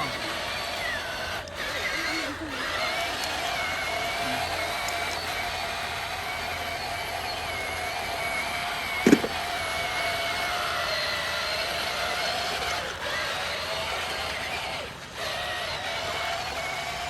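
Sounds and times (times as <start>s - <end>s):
electric motors whining: 0.0s - 17.0s
sharp knock: 9.1s - 9.4s.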